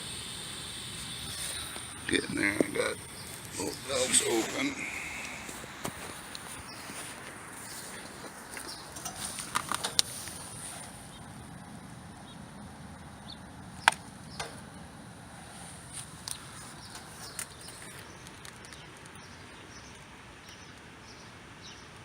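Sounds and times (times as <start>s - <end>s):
sharp clicks: 0.0s - 11.3s, 13.7s - 14.8s, 16.0s - 20.9s
low hum: 0.0s - 18.2s.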